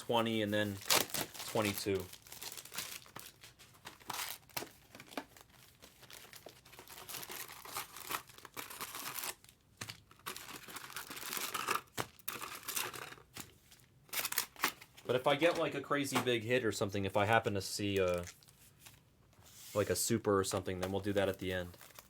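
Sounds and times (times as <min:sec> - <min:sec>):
foil wrappers crinkling and tearing: 0:00.0 - 0:15.4, 0:17.8 - 0:19.0, 0:21.0 - 0:22.0.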